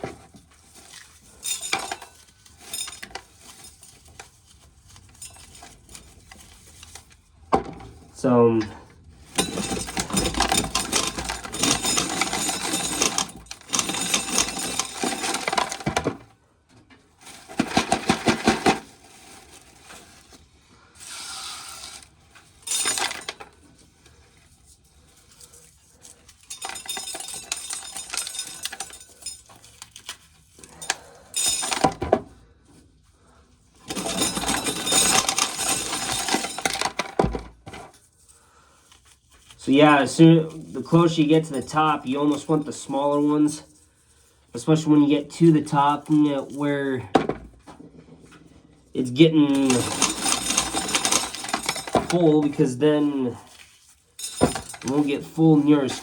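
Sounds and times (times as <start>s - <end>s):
corn kernels rattling into container: 9.3s - 16.2s, 17.2s - 20.3s, 21.0s - 23.5s, 33.8s - 37.4s, 49.0s - 53.6s, 54.2s - 56.0s.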